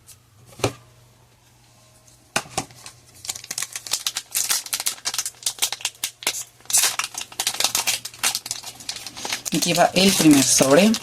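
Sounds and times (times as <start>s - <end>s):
foil wrapper crinkling: 2.7s - 11.0s.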